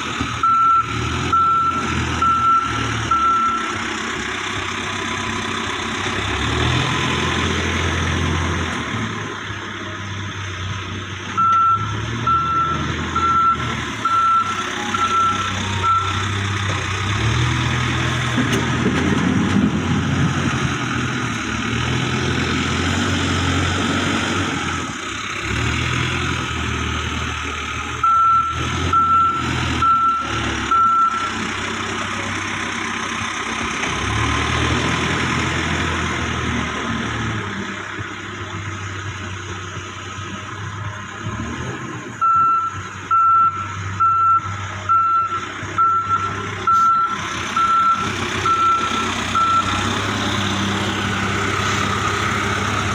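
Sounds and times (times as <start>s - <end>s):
diesel engine running: 0.0s - 52.9s
reversing alarm beeping: 0.4s - 3.8s, 11.4s - 16.6s, 28.0s - 31.4s, 42.2s - 49.9s.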